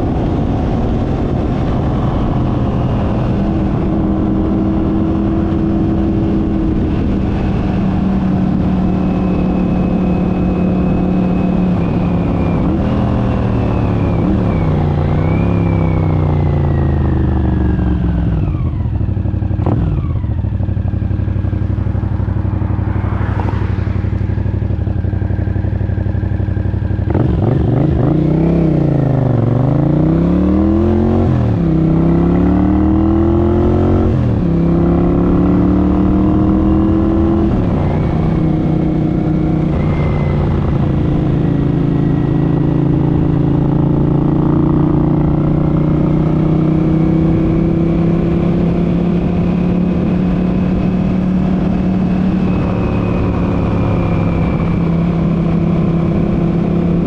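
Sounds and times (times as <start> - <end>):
motorcycle engine running: 0.0 - 57.0
transmission whine: 36.5 - 45.8, 49.9 - 56.8.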